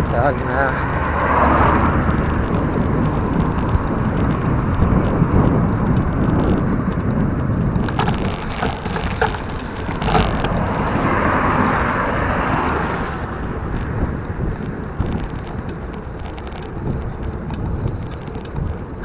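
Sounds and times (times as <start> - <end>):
road noise from bicycle: 0.0 - 19.0
traffic passing: 0.0 - 19.0
wind rumbling on microphone: 0.0 - 19.0.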